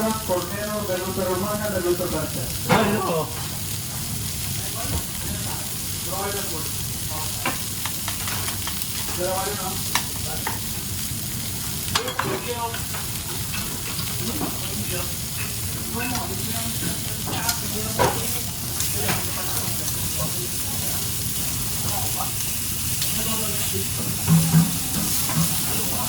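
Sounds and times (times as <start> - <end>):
food sizzling in a pan: 0.0 - 26.0
utensils knocking against cookware: 11.9 - 14.7, 23.9 - 25.9.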